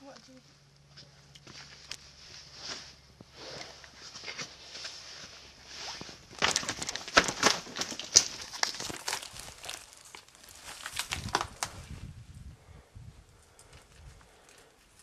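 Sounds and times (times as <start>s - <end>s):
footsteps crunching dry leaves: 0.9s - 12.0s.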